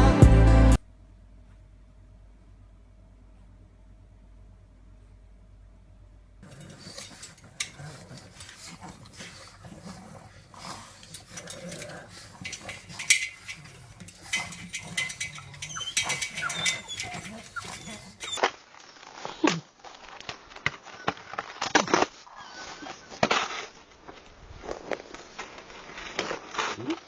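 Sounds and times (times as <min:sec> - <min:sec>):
dog making noise: 0:15.6 - 0:18.6
short squeaky sounds: 0:18.2 - 0:27.0.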